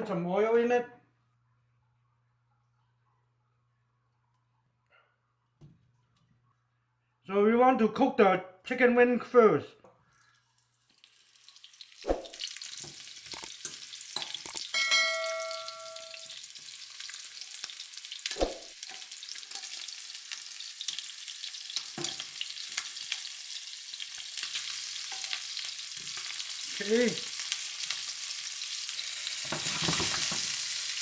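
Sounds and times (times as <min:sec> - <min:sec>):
chicken frying in hot oil: 0:10.3 - 0:31.0
short metallic ring: 0:14.8 - 0:16.2.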